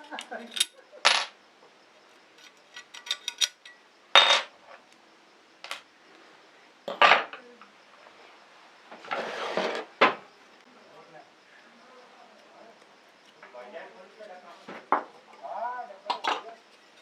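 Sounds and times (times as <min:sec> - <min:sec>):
metal parts clinking: 0:00.0 - 0:01.3, 0:02.4 - 0:04.5
short scrape: 0:09.0 - 0:09.9.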